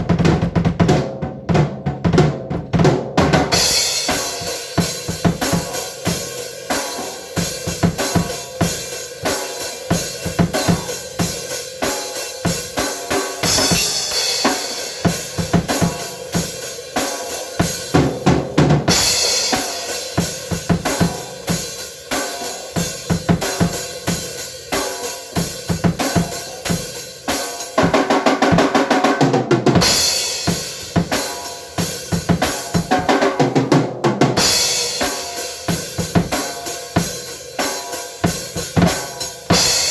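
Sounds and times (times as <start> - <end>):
drum kit playing: 0.0 - 39.9.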